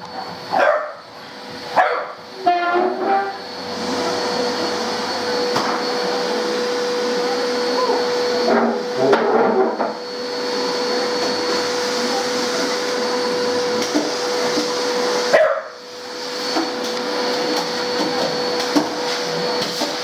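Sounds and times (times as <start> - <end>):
vacuum cleaner whine: 0.0 - 20.0
dog barking: 0.2 - 1.0, 1.8 - 2.2, 15.3 - 15.8
dog whimpering: 7.7 - 8.0.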